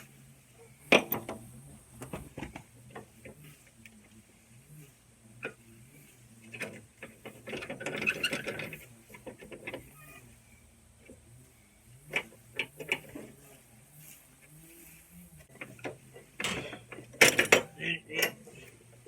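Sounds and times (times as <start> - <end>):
metal tools clicking and rattling: 15.6 - 18.7.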